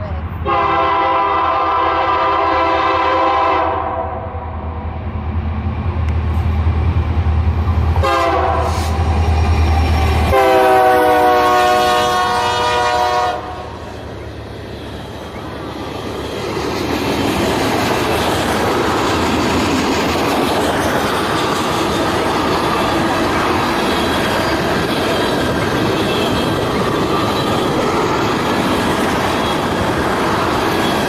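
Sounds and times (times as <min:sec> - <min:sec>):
train horn blasts: 0:00.4 - 0:04.5, 0:08.0 - 0:09.0, 0:10.3 - 0:13.8
locomotive engine rumble: 0:04.8 - 0:31.0
train wheels on rails: 0:04.8 - 0:31.0.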